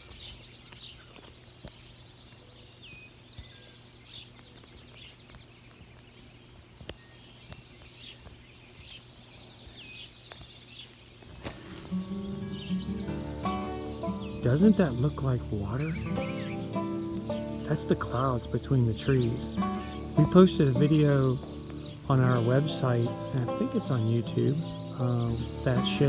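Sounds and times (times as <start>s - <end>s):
songbirds chirping: 0.0s - 26.0s
bird high rapid trill: 11.4s - 26.0s.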